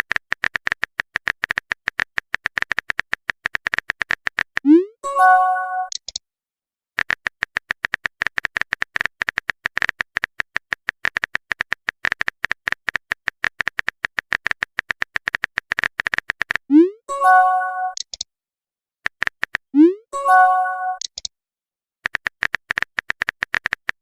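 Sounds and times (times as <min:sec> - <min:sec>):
phone keyboard clicks: 0:21.0 - 0:21.3, 0:22.0 - 0:24.0.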